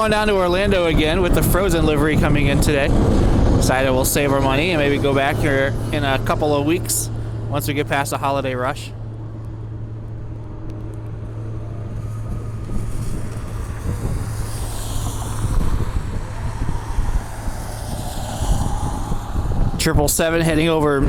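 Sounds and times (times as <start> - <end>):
jet engines hiss and whine: 0.0 - 21.0
low engine hum: 0.0 - 21.0.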